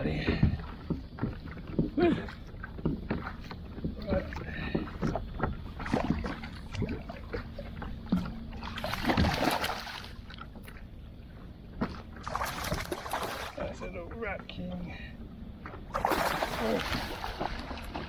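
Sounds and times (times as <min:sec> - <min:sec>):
water splashing: 0:05.7 - 0:10.8, 0:12.2 - 0:14.2, 0:15.6 - 0:18.0.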